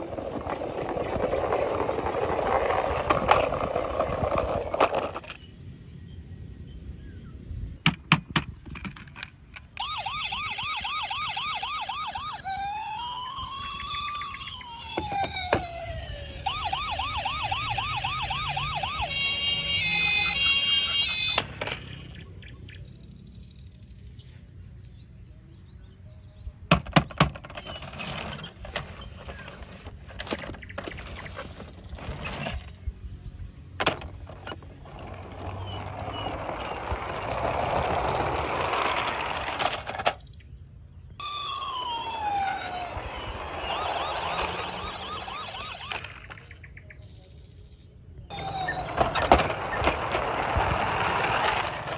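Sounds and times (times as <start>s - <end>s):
plastic toys clicking and knocking: 0.0s - 5.4s, 7.9s - 10.0s, 14.8s - 15.8s, 20.2s - 22.1s, 26.7s - 32.8s, 33.8s - 40.3s, 42.6s - 46.5s, 48.4s - 51.9s
rattling noise: 0.0s - 5.4s, 26.7s - 40.3s, 48.3s - 51.9s
toy electronic siren: 0.1s - 5.3s, 9.8s - 21.8s, 33.9s - 40.0s, 41.2s - 46.5s, 48.3s - 51.9s.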